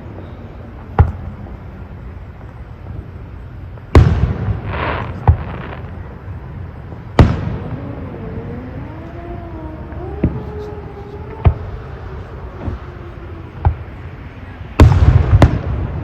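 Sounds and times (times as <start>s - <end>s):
fireworks crackle: 0.0s - 16.0s
fireworks bangs: 3.7s - 16.0s.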